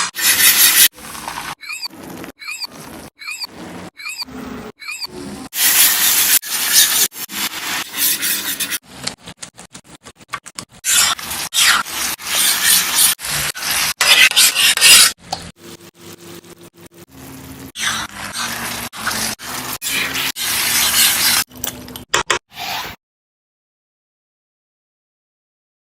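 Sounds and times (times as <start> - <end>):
utensil scraping in pan: 0.0 - 10.2, 10.8 - 16.5, 17.1 - 21.7
food sizzling: 5.6 - 21.7.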